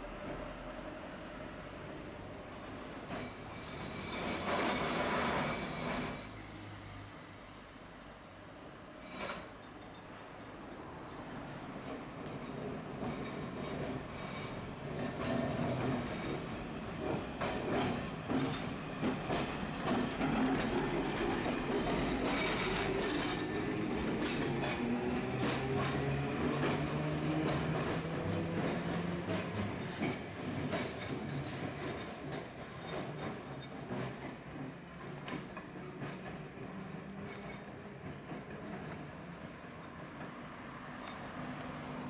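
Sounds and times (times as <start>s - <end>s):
tram running noise: 0.0s - 42.0s
tram wheels clicking over rail joints: 2.6s - 6.2s, 11.7s - 39.5s.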